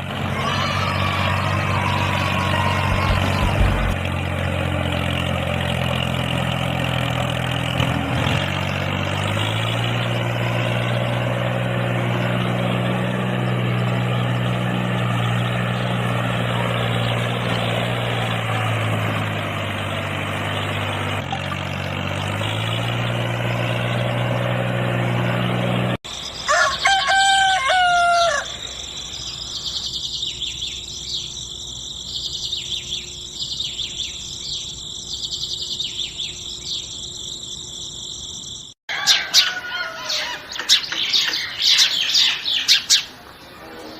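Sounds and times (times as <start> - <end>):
low engine drone: 0.0 - 26.4
rooster crowing: 0.3 - 4.0, 26.4 - 28.9, 38.9 - 40.6
high chirping: 28.5 - 43.6.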